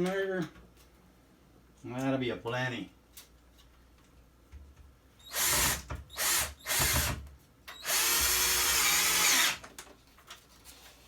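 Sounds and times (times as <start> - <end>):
power drill driving screw: 5.3 - 7.2, 7.8 - 9.6.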